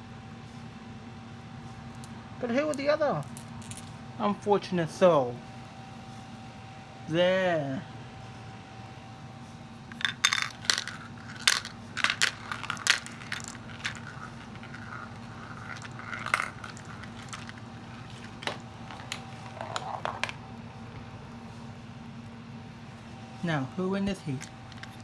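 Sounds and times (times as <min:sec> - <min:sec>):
air conditioner humming: 0:00.0 - 0:25.0
glass marbles clacking: 0:09.9 - 0:20.4.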